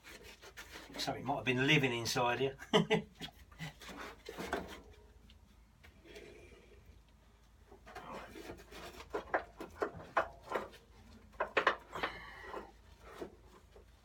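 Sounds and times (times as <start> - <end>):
plastic parts knocking and clicking: 7.8 - 13.9.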